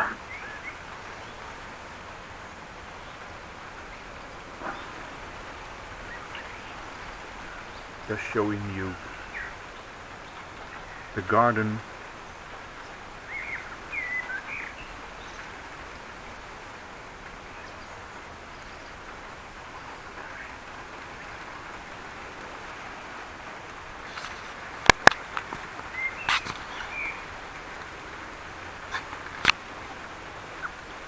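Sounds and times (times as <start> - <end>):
rain hissing: 0.0 - 31.0
bird chirps: 12.8 - 15.5, 25.1 - 27.3
sharp clicks: 24.2 - 25.6.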